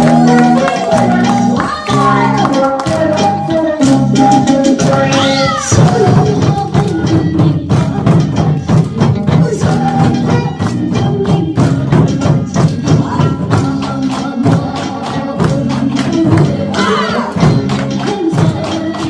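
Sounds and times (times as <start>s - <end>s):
trot song playing: 0.0s - 19.0s.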